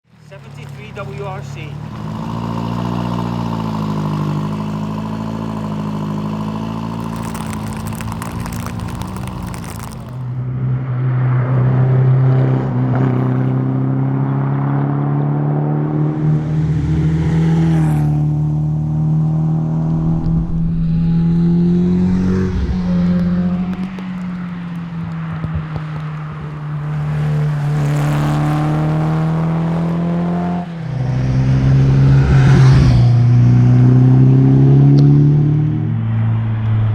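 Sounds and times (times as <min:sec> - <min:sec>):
car engine revving hard: 0:27.0 - 0:35.7.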